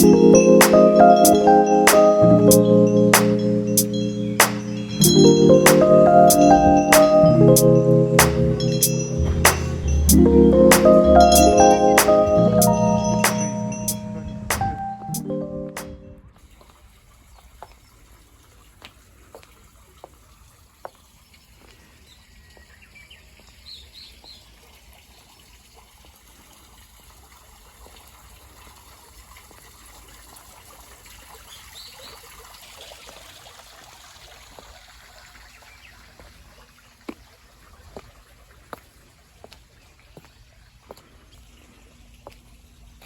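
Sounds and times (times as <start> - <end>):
steady outdoor hiss: 0.0 - 24.1
high bird chirps: 1.2 - 10.2.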